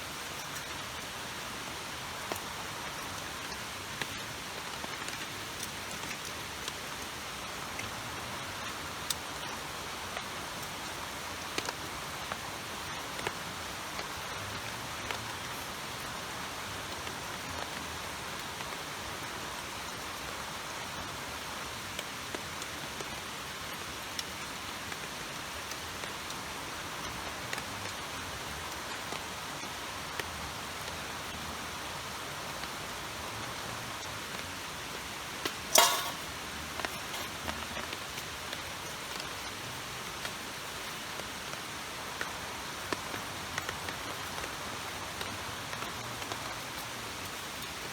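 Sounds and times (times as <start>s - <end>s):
heavy rain falling: 0.0s - 47.9s
raindrop ticks: 2.2s - 16.2s, 35.4s - 41.6s, 42.2s - 47.9s.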